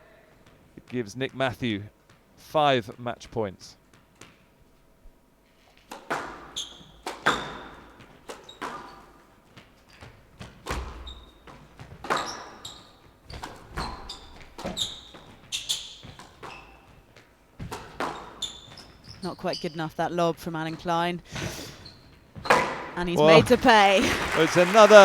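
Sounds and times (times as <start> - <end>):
shoe squeaks on wooden floor: 5.4 - 20.1, 21.4 - 22.7
squash ball knocks echoing: 5.9 - 8.9.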